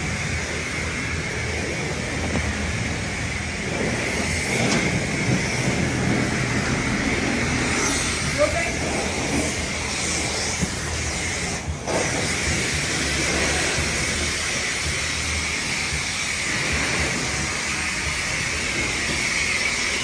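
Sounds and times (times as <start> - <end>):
high-pressure water spraying on car: 0.0 - 20.0.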